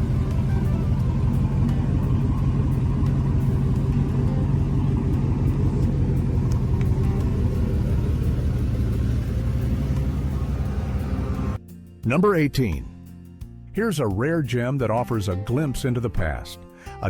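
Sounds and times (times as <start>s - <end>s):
car engine idling: 0.0s - 11.6s.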